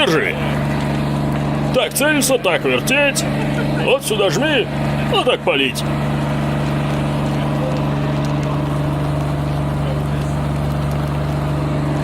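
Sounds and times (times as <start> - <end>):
fire truck engine drone: 0.0 - 12.0.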